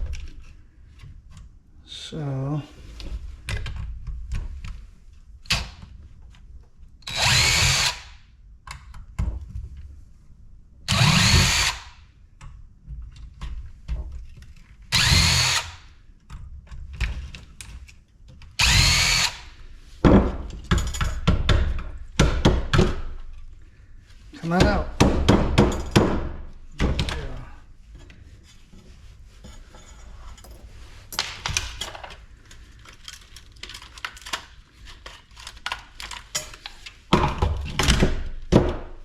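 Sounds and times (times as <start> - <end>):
power drill spinning up: 7.1 - 8.2, 10.9 - 12.0, 14.9 - 15.9, 18.6 - 19.6.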